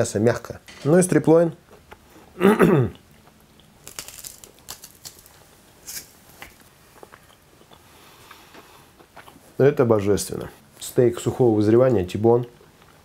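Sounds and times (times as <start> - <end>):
chewing with mouth clicks: 6.4 - 9.4.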